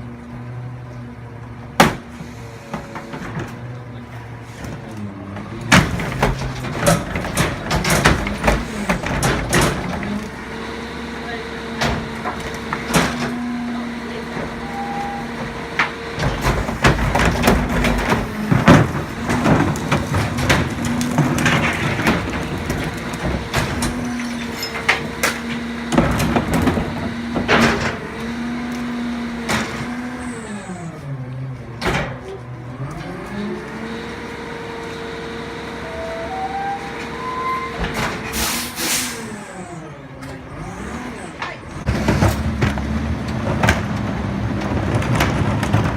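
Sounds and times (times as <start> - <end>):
garbage truck engine running: 0.0 - 45.9
metal bangs and clatters: 5.6 - 10.2, 15.8 - 28.0.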